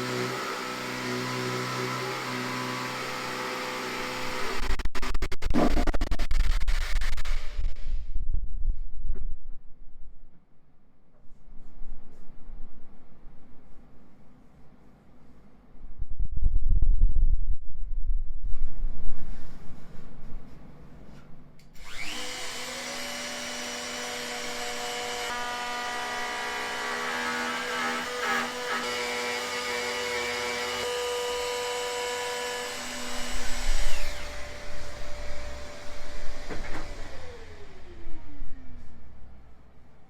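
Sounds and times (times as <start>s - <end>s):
power tool motor whine: 0.0s - 7.7s, 21.8s - 38.8s
tool rubbing on wood: 1.6s - 7.5s.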